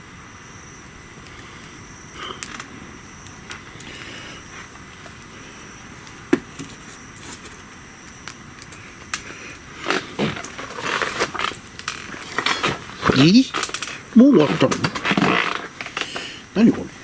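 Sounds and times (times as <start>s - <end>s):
bonfire crackling: 0.0s - 17.0s
fire popping: 0.0s - 17.0s.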